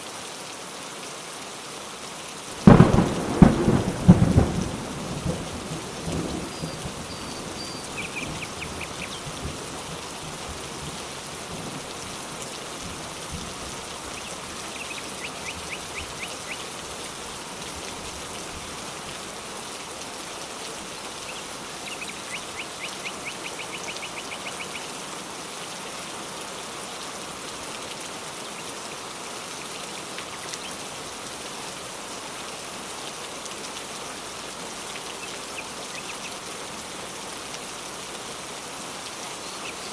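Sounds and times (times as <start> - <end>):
steady rain falling: 0.0 - 39.9
thunder rumble: 2.6 - 9.7.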